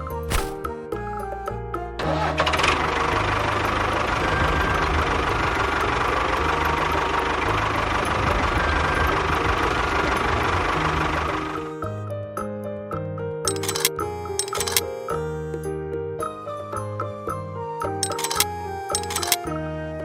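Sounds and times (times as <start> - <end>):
brief rattle: 13.5 - 14.8, 18.0 - 19.4
small engine running: 13.5 - 15.2, 18.0 - 19.4.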